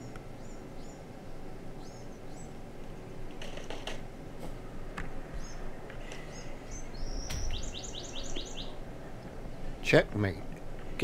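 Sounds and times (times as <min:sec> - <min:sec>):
birds chirping and whistling: 0:05.4 - 0:09.1.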